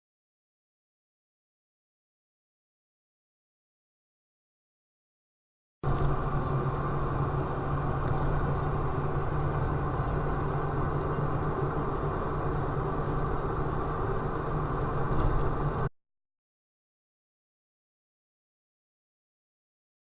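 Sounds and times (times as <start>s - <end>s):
car engine and road noise: 5.8s - 15.9s.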